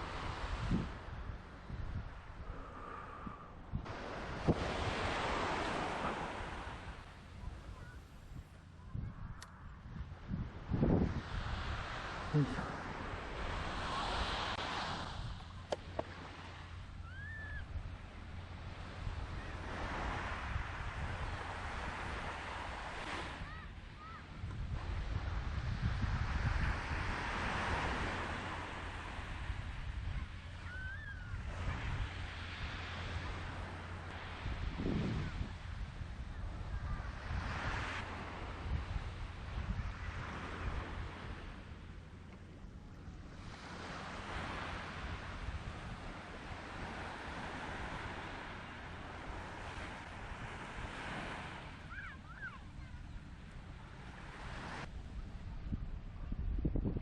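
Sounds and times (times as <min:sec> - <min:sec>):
surf breaking on beach: 0:00.0 - 0:08.4, 0:10.4 - 0:41.9, 0:43.1 - 0:55.2
wind buffeting microphone: 0:00.0 - 0:57.0
bird call: 0:17.0 - 0:17.6, 0:51.9 - 0:53.0.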